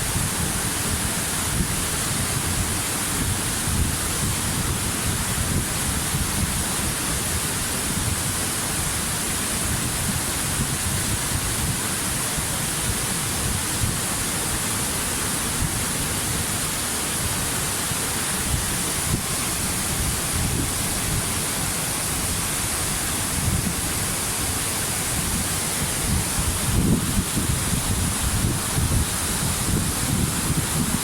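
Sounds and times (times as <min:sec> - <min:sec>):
waterfall roar: 0:00.0 - 0:31.0.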